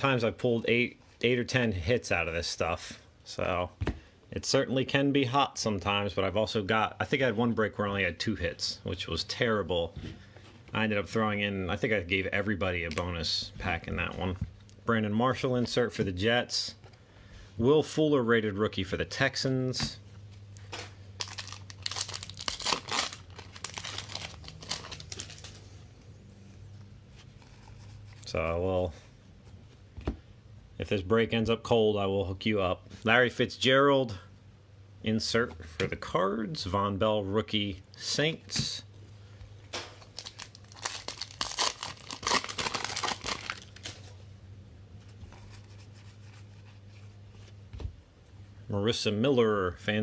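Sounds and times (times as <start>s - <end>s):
wrapper tearing and crinkling: 21.2s - 25.7s, 40.0s - 44.1s.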